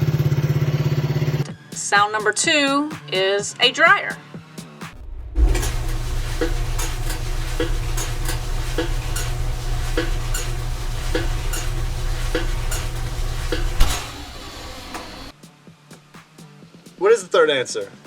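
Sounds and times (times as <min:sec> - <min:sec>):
clothes dryer drum rumbling: 0:05.4 - 0:15.3.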